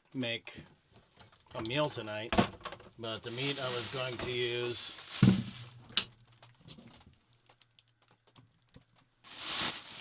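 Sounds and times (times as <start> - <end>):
short rustle: 3.3 - 6.0, 9.3 - 10.0.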